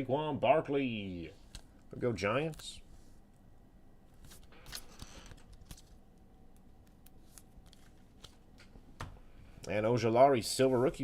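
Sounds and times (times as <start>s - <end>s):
trading cards being flipped: 4.1s - 8.8s.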